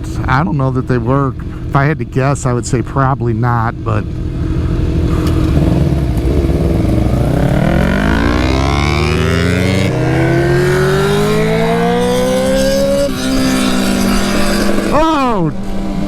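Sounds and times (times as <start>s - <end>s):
motorcycle engine accelerating: 4.0s - 16.0s.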